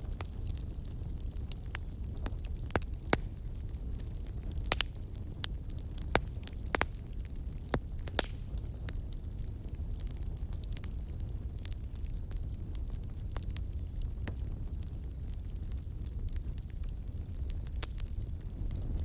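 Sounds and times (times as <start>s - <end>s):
campfire crackling and popping: 0.0s - 19.0s
low steady rumble: 16.1s - 19.0s.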